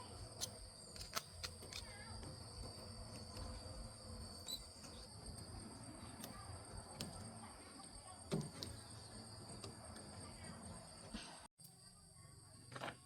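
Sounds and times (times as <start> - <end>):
insect trilling: 0.0 - 7.3.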